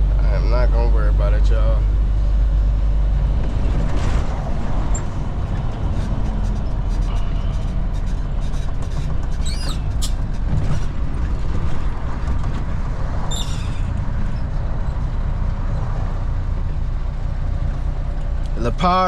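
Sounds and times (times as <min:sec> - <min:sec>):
truck engine and road noise: 0:00.0 - 0:19.0
high squeaks: 0:06.4 - 0:10.3, 0:13.2 - 0:14.6.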